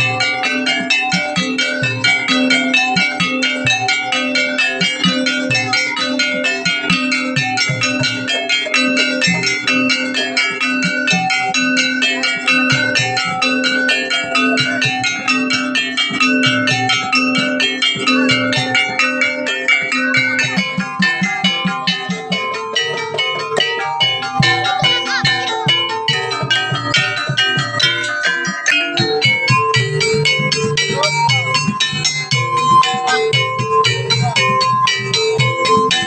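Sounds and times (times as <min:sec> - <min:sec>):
drum strokes: 0:00.0 - 0:36.0
gamelan metal-keyed notes: 0:00.0 - 0:36.0.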